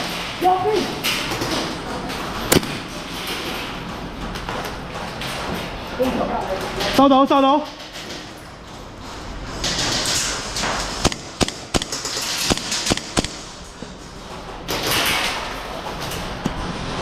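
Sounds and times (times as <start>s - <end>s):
airsoft guns firing: 2.5s - 3.0s, 11.0s - 13.6s.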